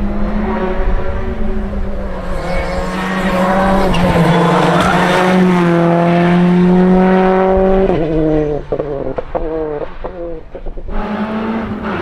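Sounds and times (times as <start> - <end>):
rally car engine revving: 0.0 - 12.0
rush of noise: 1.0 - 6.5.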